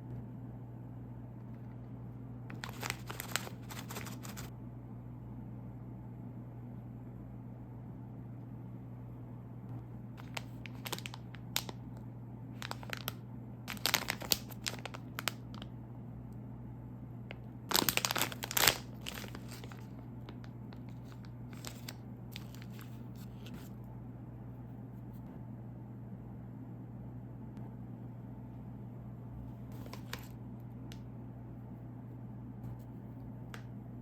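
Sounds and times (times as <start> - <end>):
steady low hum: 0.0 - 34.0
plastic packaging crinkling: 2.5 - 4.5, 10.2 - 12.0, 12.6 - 15.6, 17.7 - 23.7, 29.7 - 30.4.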